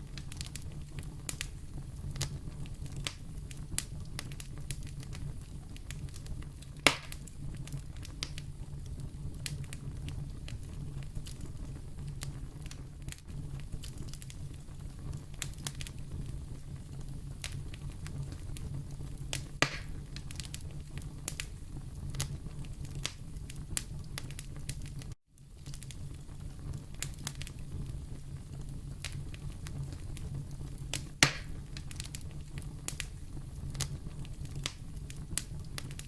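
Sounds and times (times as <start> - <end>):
fire crackling: 0.0 - 36.0
fire rumbling: 0.0 - 36.0
loud fire pop: 6.8 - 7.3, 19.3 - 20.6, 30.9 - 32.2.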